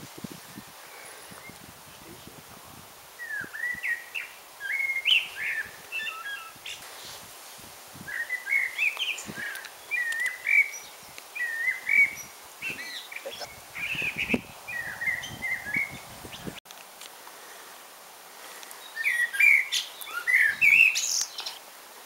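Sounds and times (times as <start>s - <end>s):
songbird chirping: 3.1s - 7.1s, 8.0s - 16.6s, 18.4s - 21.7s.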